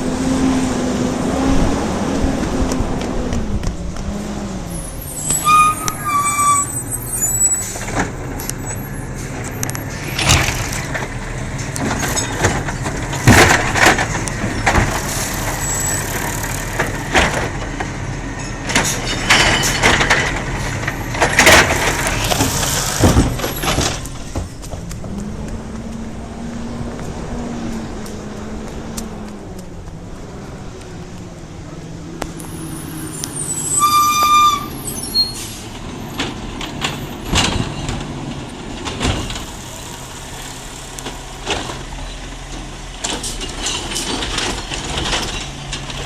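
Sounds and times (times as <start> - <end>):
garbage truck running: 0.0 - 46.0
loud clanks and bangs: 9.3 - 25.2.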